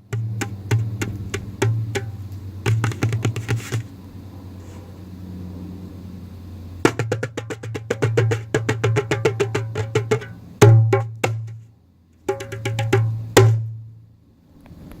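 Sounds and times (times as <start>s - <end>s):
djembe hand drum: 0.0s - 3.9s, 6.8s - 11.6s, 12.3s - 13.8s.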